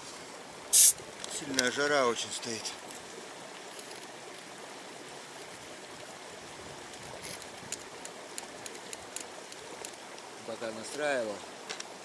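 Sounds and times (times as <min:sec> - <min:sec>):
river water running over stones: 0:00.0 - 0:12.0.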